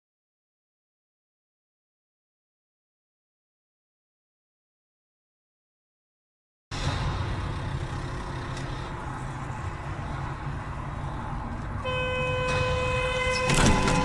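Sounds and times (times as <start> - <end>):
vehicle engine and road noise: 6.7 - 14.0
car horn long note: 11.8 - 14.0.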